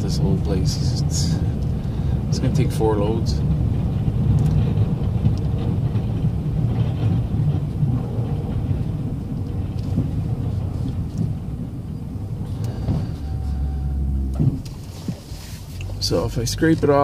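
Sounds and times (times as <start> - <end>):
snowplow truck rumbling: 0.0 - 17.0
steady hum: 7.5 - 16.2.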